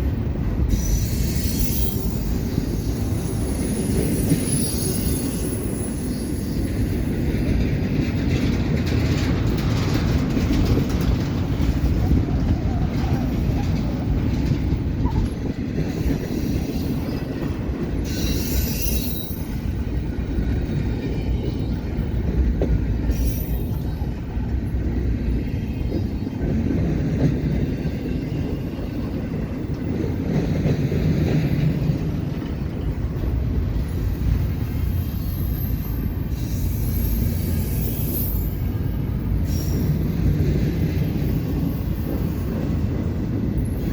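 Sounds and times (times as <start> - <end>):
train wheels rumbling on rail: 0.0 - 43.9
high-pitched wheel squeals: 0.7 - 7.0, 18.0 - 19.8, 23.0 - 24.1, 34.6 - 40.0.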